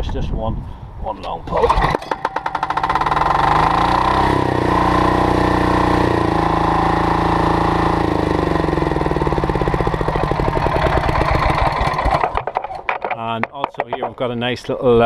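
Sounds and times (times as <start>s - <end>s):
diesel engine running: 1.8s - 12.5s.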